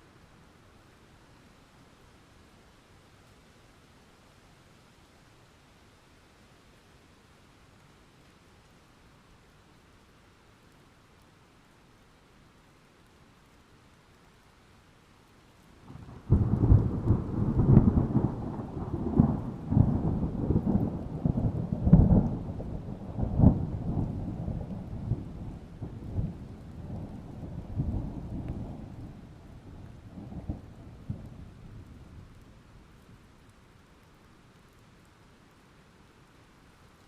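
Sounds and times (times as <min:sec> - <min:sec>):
steady rain: 0:00.0 - 0:37.0
thunder rumbling: 0:15.9 - 0:32.6.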